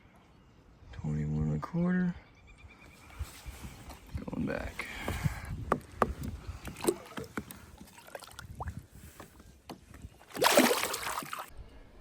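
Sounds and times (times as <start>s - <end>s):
loud water splash: 10.3s - 11.5s.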